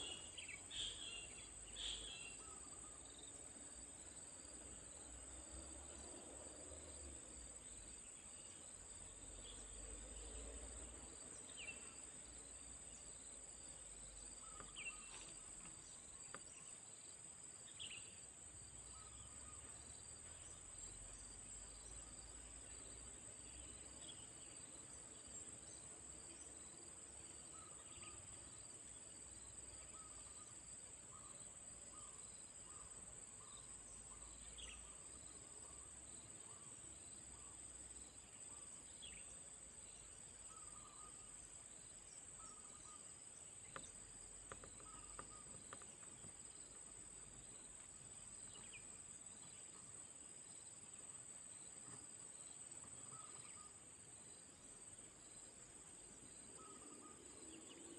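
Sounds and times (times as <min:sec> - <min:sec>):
insects chirring: 0:00.0 - 0:57.9.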